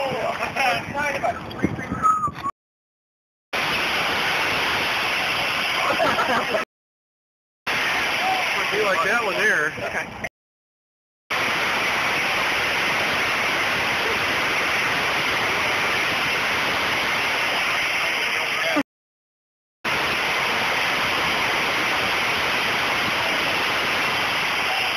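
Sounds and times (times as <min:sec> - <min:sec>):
loud steady rushing noise: 0:03.6 - 0:06.6, 0:07.7 - 0:10.3, 0:11.3 - 0:18.8, 0:19.9 - 0:24.9.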